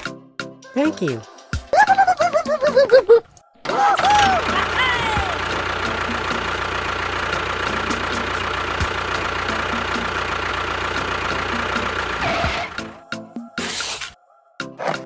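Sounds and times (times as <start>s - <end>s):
small engine idling: 3.7s - 13.1s.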